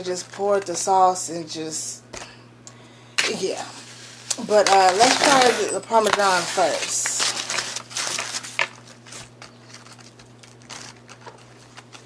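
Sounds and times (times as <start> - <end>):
food packaging crinkling: 3.6 - 12.0.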